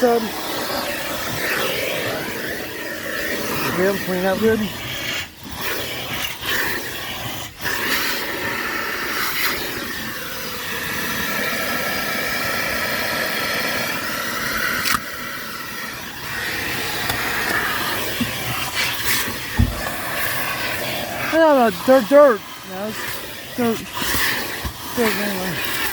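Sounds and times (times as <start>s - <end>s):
vacuum cleaner sucking air: 0.0s - 25.9s
nozzle knocking: 17.0s - 20.4s.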